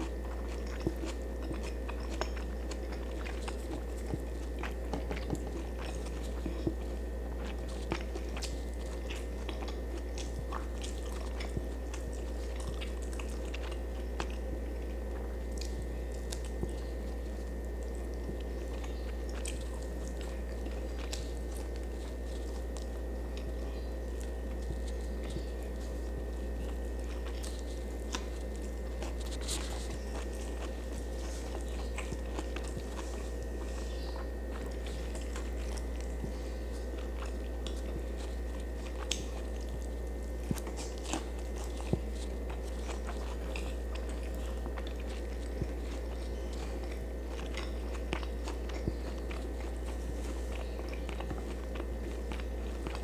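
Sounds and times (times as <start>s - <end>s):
person chewing food: 0.0s - 53.0s.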